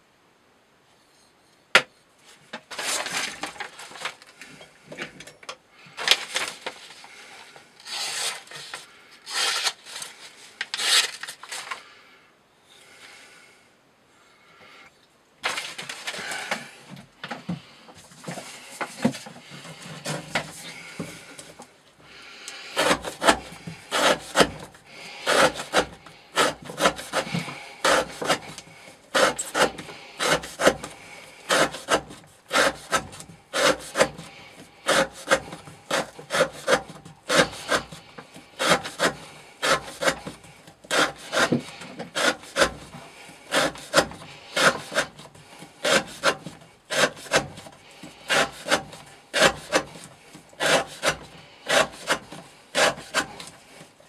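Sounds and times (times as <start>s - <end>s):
knife cutting rope: 7.8s - 10.1s, 10.7s - 11.8s, 18.3s - 21.5s, 22.7s - 53.9s.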